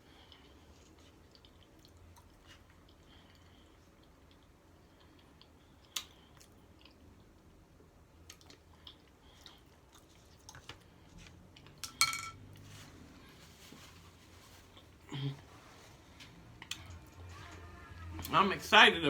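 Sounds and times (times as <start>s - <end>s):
chewing crunchy food: 0.0s - 11.8s.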